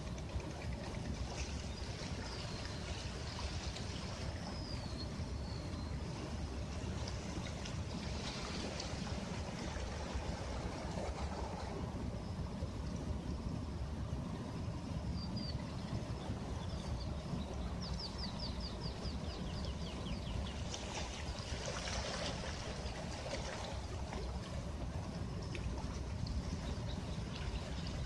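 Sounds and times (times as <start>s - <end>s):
sea surf washing: 6.0s - 18.4s.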